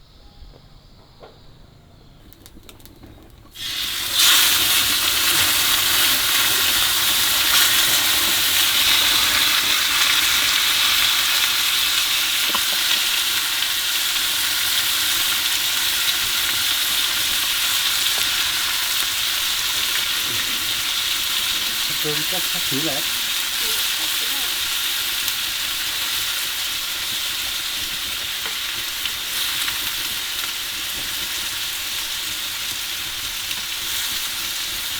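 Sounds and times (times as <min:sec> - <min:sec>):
faint clicks: 0:02.2 - 0:03.5
food sizzling in hot oil: 0:03.5 - 0:34.9.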